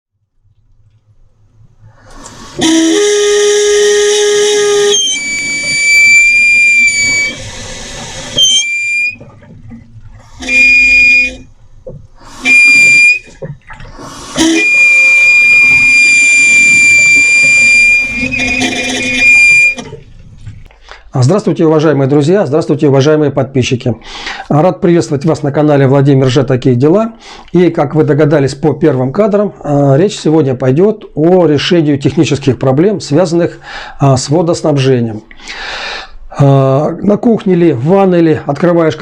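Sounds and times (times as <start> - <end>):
low hum: 0.5 - 20.7
water valve whistling: 1.8 - 20.2.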